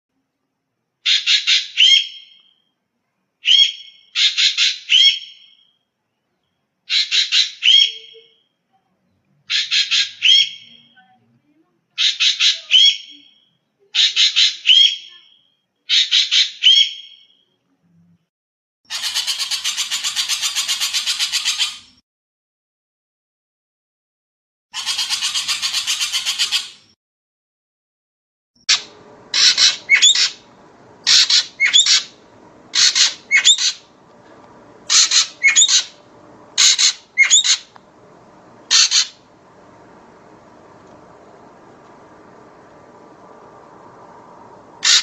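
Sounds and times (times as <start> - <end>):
magpie squawking calls: 9.5 - 10.7, 18.9 - 21.8, 24.8 - 26.8, 28.7 - 30.4, 31.0 - 33.9, 34.9 - 36.0, 36.6 - 37.7, 38.7 - 39.2, 44.8 - 45.0
harsh bird rattle: 28.7 - 33.9, 34.8 - 36.0, 36.6 - 37.8, 38.6 - 40.1, 44.7 - 45.0.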